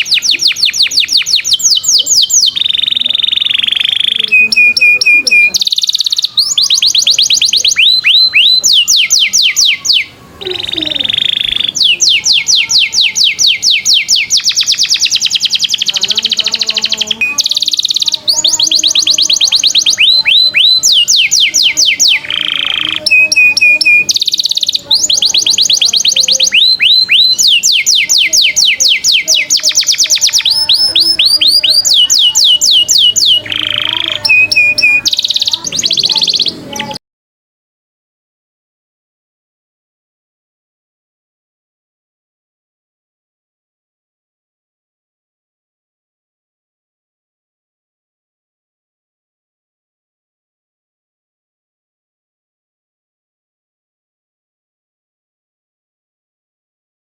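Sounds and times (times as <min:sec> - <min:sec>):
songbird fast trills: 0:00.0 - 0:37.0.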